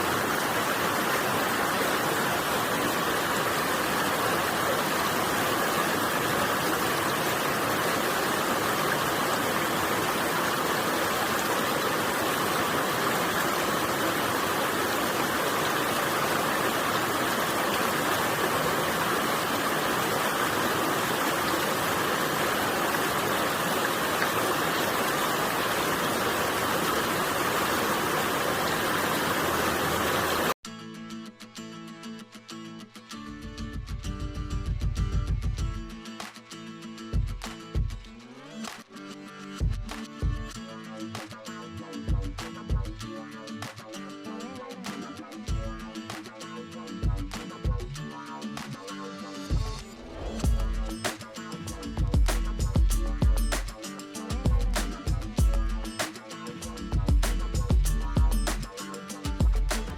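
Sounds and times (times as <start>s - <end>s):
stream rushing over rocks: 0.0s - 30.6s, 52.3s - 56.5s, 58.4s - 59.9s.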